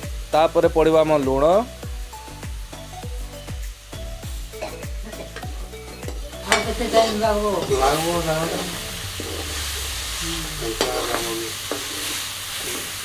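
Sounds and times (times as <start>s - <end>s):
food sizzling in hot oil: 0.0s - 13.0s
wavering voice-like sound: 8.4s - 11.2s.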